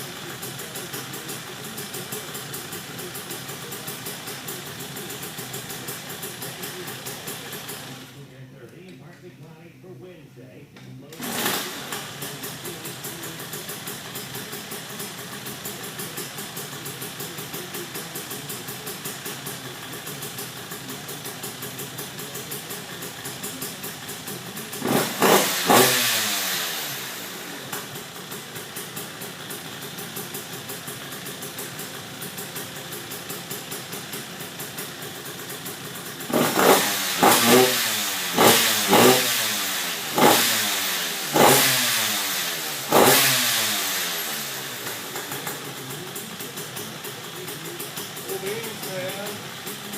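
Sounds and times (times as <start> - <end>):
two-stroke engine idling: 0.0 - 8.5, 11.1 - 49.9
engine revving in blips: 11.1 - 12.3, 24.8 - 28.0, 36.3 - 45.6.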